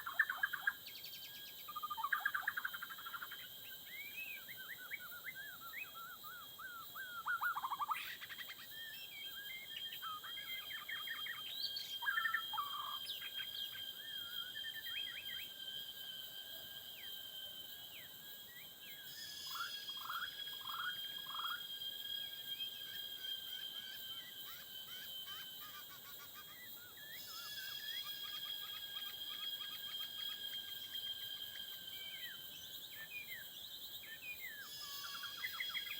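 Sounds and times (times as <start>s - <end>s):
birds singing whistled phrases: 0.0s - 15.6s
insects droning: 0.0s - 35.9s.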